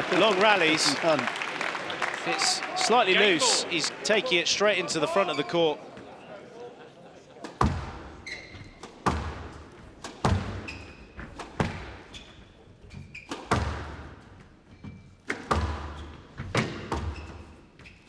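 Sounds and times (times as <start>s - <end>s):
squash ball hitting rackets and walls: 7.4s - 18.0s
shoe squeaks on court floor: 8.2s - 9.0s, 10.6s - 11.4s, 12.0s - 13.5s, 15.9s - 18.0s.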